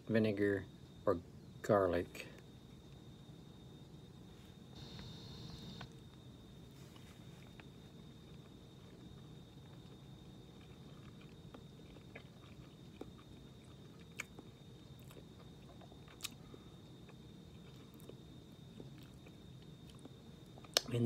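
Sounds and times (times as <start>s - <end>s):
low room hum: 0.0s - 21.0s
thin high whine: 4.3s - 6.0s
faint chewing: 6.8s - 21.0s.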